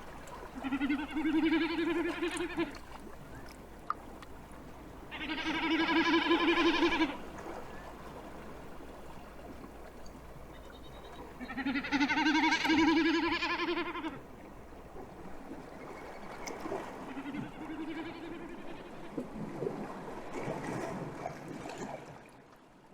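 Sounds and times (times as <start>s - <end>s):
snipe drumming bleating hum: 0.6s - 2.8s, 5.1s - 7.2s, 11.4s - 14.2s.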